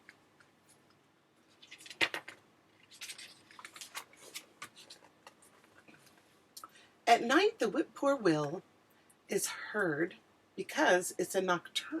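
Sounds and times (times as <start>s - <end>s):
paper pages rustling: 1.4s - 6.3s.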